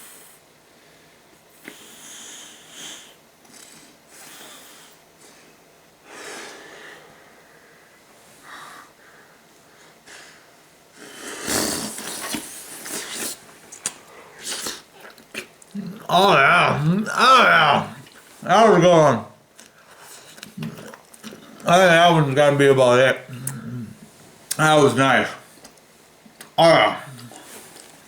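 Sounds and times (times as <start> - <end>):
person breathing hard: 4.2 - 11.6
breathy puffs blowing bubble gum: 10.1 - 13.5.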